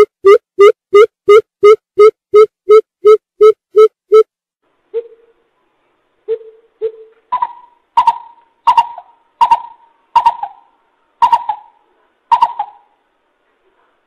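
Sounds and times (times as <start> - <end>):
bird hooting: 4.9 - 5.3, 6.3 - 13.0.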